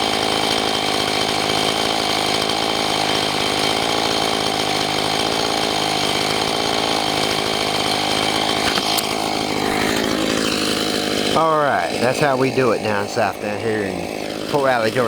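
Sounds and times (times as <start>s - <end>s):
chainsaw ripping through log: 0.0s - 15.0s.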